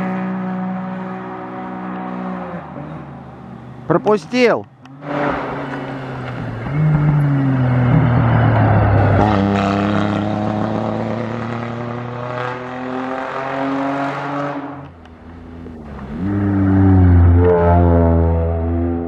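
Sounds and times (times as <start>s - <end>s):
car engine accelerating hard: 0.0s - 4.1s, 4.8s - 19.0s.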